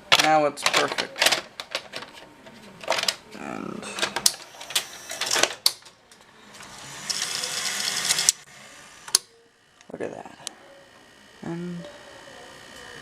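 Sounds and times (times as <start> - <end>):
plastic clicks: 0.1 - 3.2
tape deck motor whirring: 4.2 - 5.8, 6.5 - 9.8.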